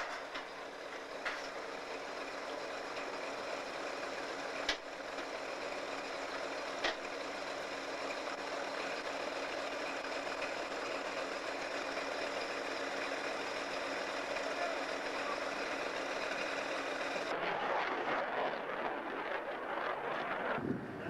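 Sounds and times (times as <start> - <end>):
diesel locomotive engine running: 0.0 - 21.0.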